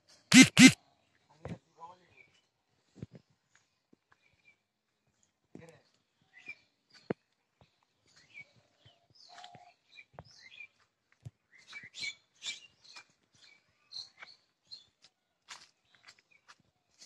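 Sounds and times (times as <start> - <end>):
small birds chirping: 5.7 - 10.8.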